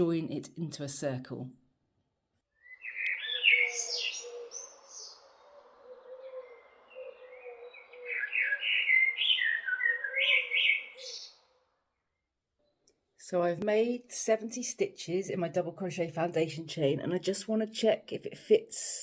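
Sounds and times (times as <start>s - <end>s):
small birds chirping: 2.5s - 13.1s.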